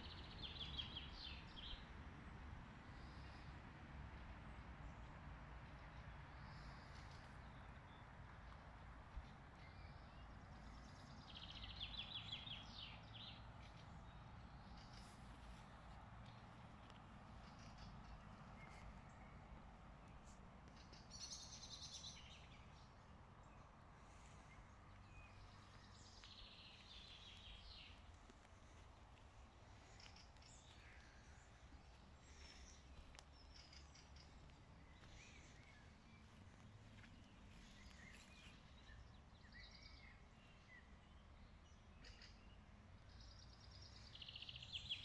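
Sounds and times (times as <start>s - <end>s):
songbird singing: 0.0s - 3.6s, 4.5s - 45.0s
faint woodland background: 0.0s - 45.0s.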